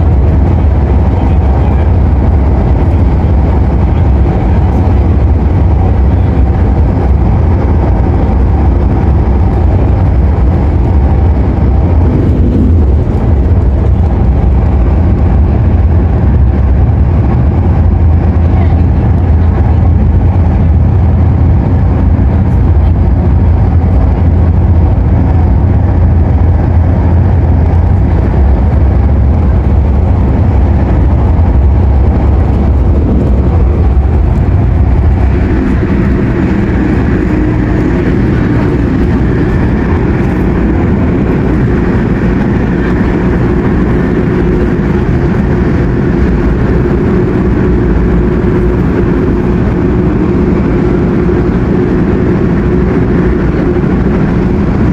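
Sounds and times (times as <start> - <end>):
steady hum: 0.0 - 54.9
train rumbling on track: 0.0 - 54.9
higher rushing sound: 23.2 - 54.9.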